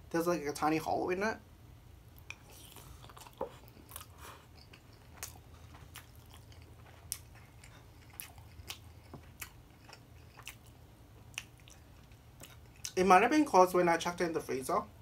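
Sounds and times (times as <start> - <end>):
person chewing food: 2.1 - 13.0.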